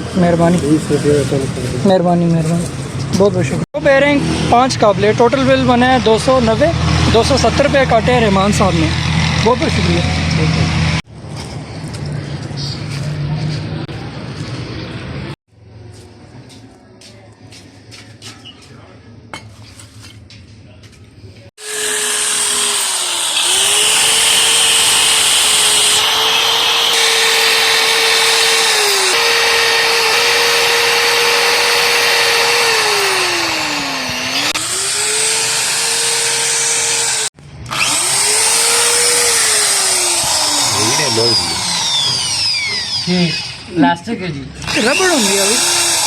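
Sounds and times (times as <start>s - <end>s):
electric power tool whining: 3.8s - 11.0s, 21.6s - 43.9s, 44.6s - 46.0s.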